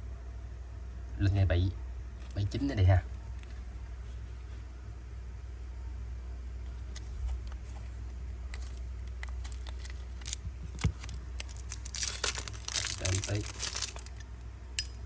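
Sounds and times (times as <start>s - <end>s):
low hum: 0.0s - 15.0s
wrapping crinkling: 6.8s - 14.3s.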